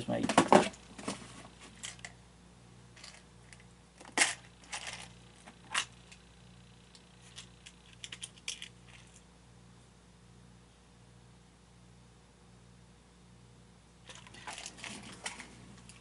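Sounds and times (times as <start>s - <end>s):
small hard parts clattering: 3.0s - 6.2s, 7.2s - 9.2s, 14.1s - 16.0s.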